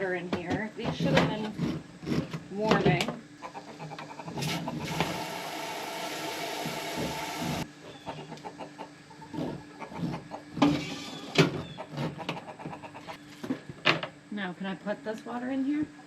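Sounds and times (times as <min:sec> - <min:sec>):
water running into a pot: 0:04.4 - 0:07.6.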